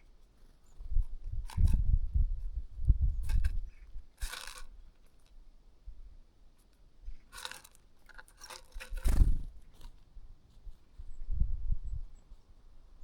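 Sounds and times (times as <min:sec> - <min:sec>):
birds pecking at food: 0:04.2 - 0:05.4, 0:06.7 - 0:10.9.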